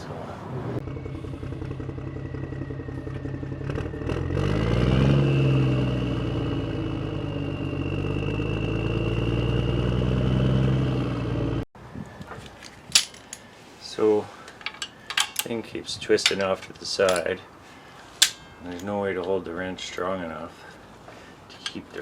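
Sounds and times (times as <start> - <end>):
thin whine: 0.8 - 4.6
engine running: 0.8 - 11.6.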